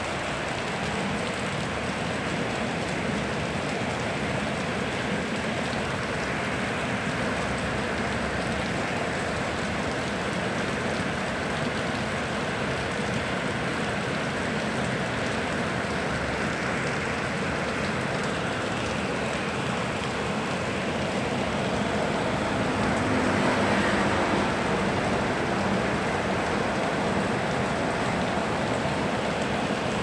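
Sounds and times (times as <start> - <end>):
river water rushing: 0.0 - 30.0
steady rain falling: 0.0 - 30.0.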